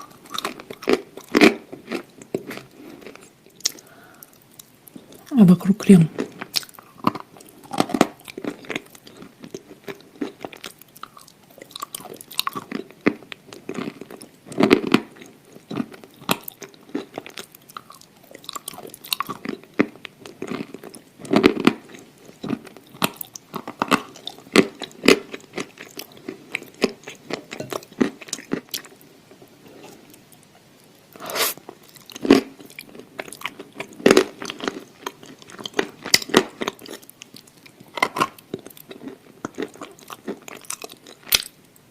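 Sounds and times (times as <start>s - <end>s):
person chewing crunchy food: 0.0s - 5.3s, 5.9s - 41.9s.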